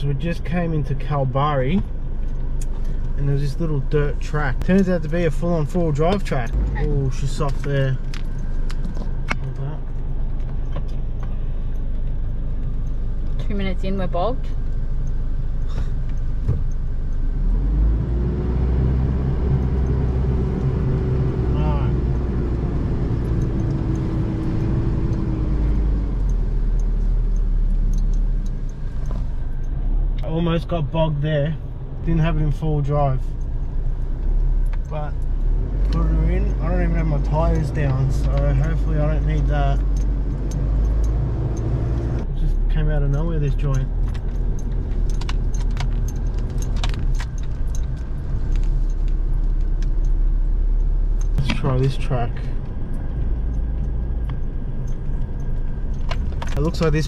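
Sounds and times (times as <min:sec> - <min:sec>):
car engine under load: 0:00.0 - 0:57.0
vehicle driving on rough track: 0:00.0 - 0:57.0
light ticks: 0:23.1 - 0:30.3, 0:33.3 - 0:42.3.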